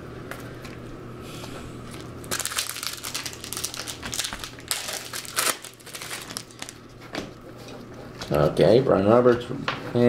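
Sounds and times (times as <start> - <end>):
foil wrapper crinkling: 1.9 - 6.9.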